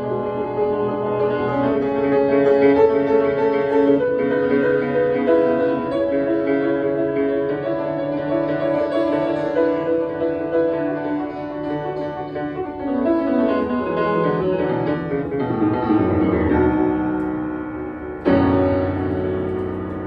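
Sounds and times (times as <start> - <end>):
solo piano: 0.0 - 20.0.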